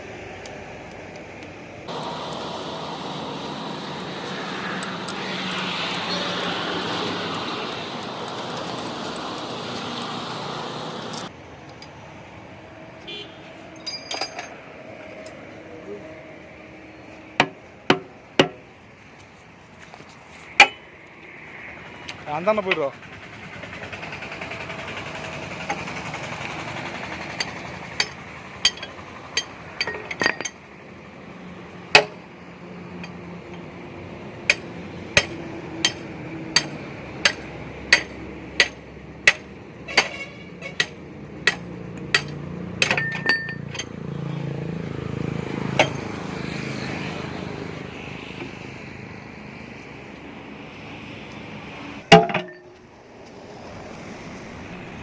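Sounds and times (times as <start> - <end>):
backhoe engine running: 0.0 - 12.0, 21.0 - 47.9
sharp metallic clanks: 13.8 - 14.6, 20.6 - 20.9, 27.3 - 30.7, 34.5 - 44.0, 45.7 - 46.2, 52.1 - 52.8.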